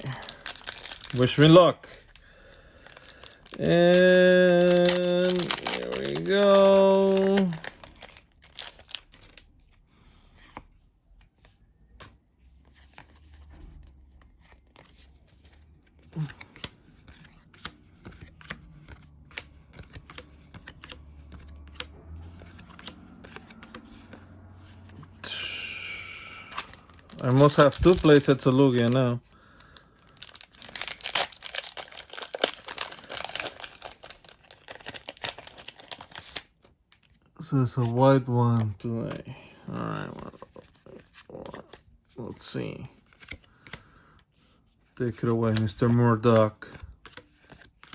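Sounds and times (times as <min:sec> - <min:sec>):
foil wrapper crinkling: 0:00.0 - 0:09.4, 0:26.4 - 0:36.6
trading cards being handled: 0:00.0 - 0:09.4, 0:10.4 - 0:47.9.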